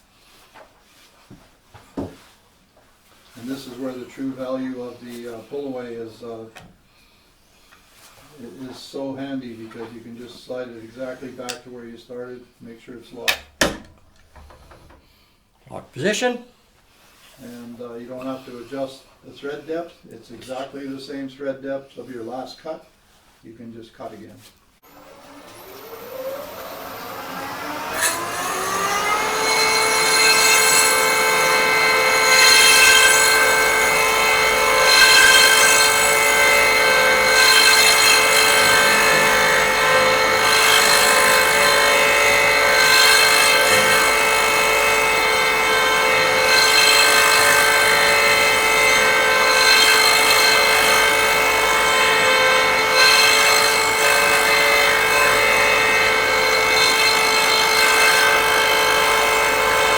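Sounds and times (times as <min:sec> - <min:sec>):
cutter cutting wood: 0:24.8 - 0:59.9
cutter motor running: 0:24.9 - 0:59.9.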